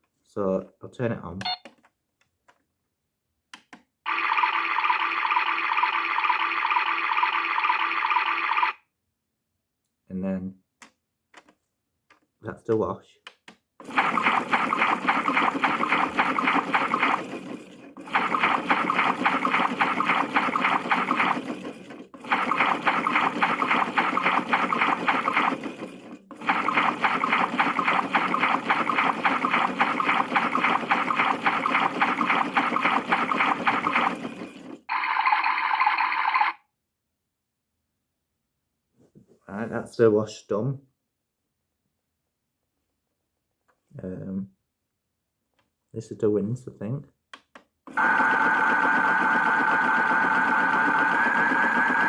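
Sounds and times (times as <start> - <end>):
toy speaker steady tones: 4.1 - 8.8, 34.9 - 36.6, 48.0 - 52.0
toy water-sloshing sound effect: 4.1 - 8.8, 13.8 - 36.6.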